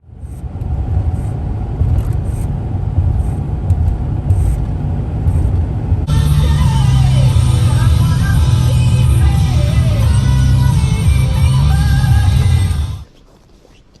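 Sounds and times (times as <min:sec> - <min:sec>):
low rumbling noise: 0:00.0 - 0:13.1
music: 0:06.1 - 0:13.0.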